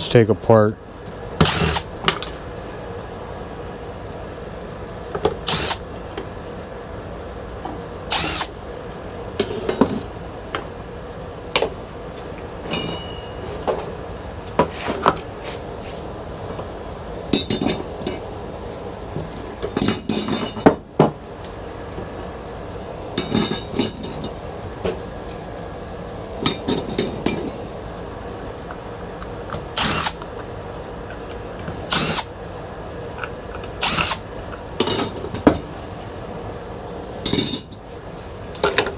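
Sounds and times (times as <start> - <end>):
metal parts clinking and knocking: 37.3 - 37.8.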